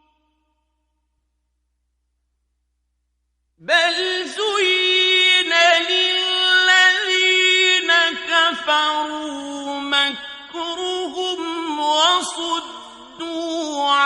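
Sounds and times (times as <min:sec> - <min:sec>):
man reciting melodically: 0:03.6 - 0:14.0.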